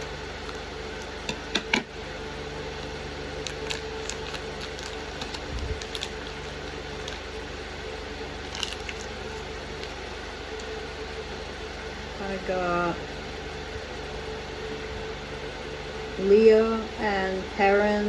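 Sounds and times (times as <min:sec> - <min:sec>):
steady low hum: 0:00.0 - 0:18.0
plastic packaging crinkling: 0:03.3 - 0:07.5, 0:08.4 - 0:10.8.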